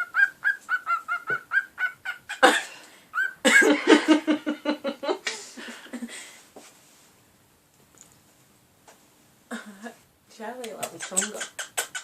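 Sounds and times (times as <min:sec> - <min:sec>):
cockatiel chirping: 0:00.0 - 0:02.4, 0:10.8 - 0:12.0.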